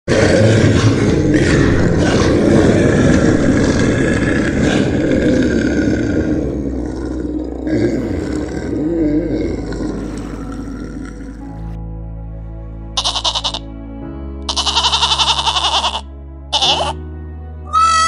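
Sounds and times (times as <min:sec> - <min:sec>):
dinosaur roar: 0:00.1 - 0:11.8.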